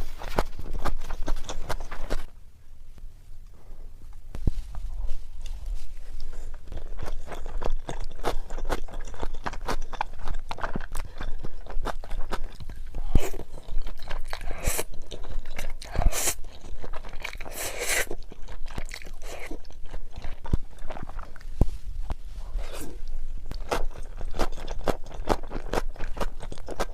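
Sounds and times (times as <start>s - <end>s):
person crunching and chewing food: 0.0s - 2.3s, 4.9s - 26.9s.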